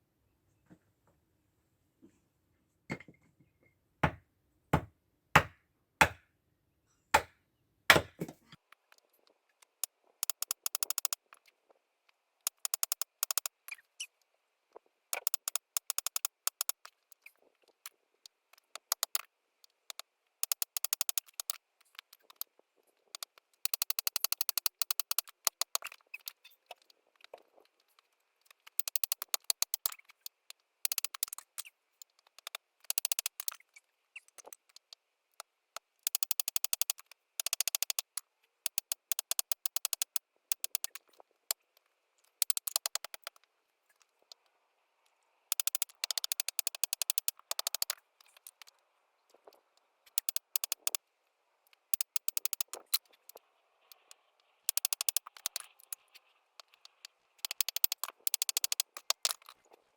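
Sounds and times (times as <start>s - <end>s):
axe splitting firewood: 4.8s - 6.2s, 7.2s - 8.5s.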